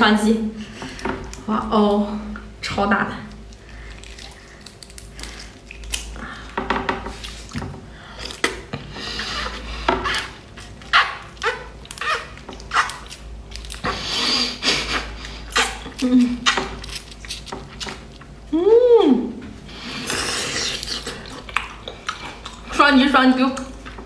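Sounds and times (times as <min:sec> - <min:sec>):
mouth sucking and slurping: 0:19.7 - 0:21.4.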